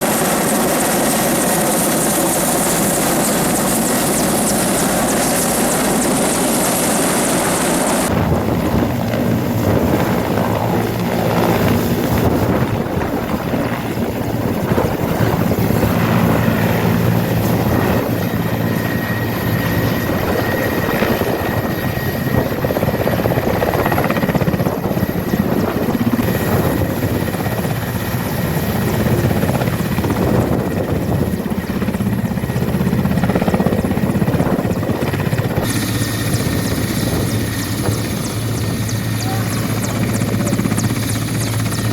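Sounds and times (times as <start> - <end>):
helicopter rotor and engine: 0.0 - 41.9.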